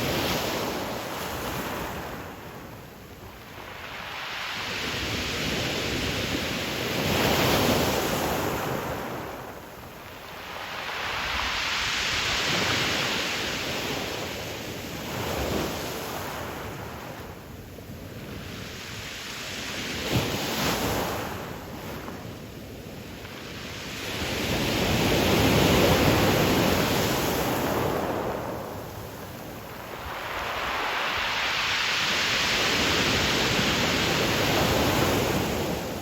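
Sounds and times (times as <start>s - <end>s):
surf washing up pebble beach: 10.3s - 16.3s, 23.8s - 36.0s.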